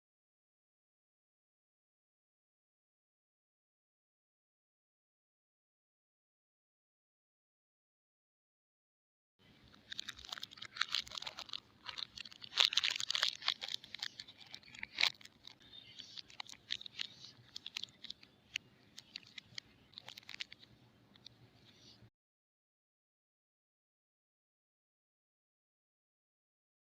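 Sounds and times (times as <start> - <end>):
packaging crinkling and rustling: 9.7 - 20.7.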